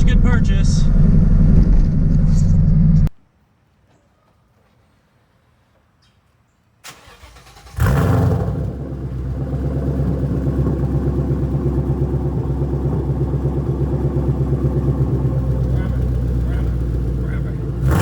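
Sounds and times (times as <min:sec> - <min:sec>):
engine firing and idling: 0:00.0 - 0:03.1, 0:06.8 - 0:18.0.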